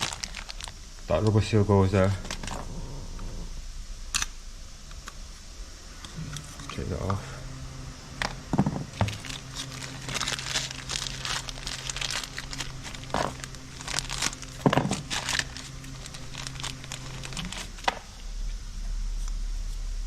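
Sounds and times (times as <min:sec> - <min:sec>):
plastic wrapping crinkling: 0:00.0 - 0:01.3, 0:08.2 - 0:18.3
faint low hum: 0:00.0 - 0:20.0.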